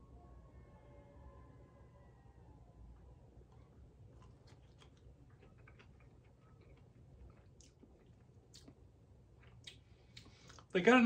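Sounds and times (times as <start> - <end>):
faint chewing: 3.4 - 10.8.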